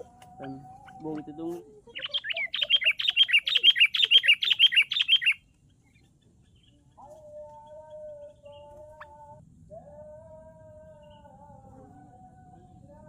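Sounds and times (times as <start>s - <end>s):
bird sharp chirps: 0.4s - 7.1s
faint humming tone: 3.7s - 13.0s.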